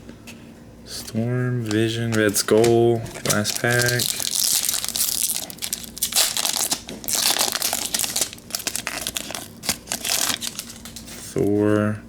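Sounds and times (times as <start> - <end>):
wrapper crinkling and tearing: 1.7 - 11.2.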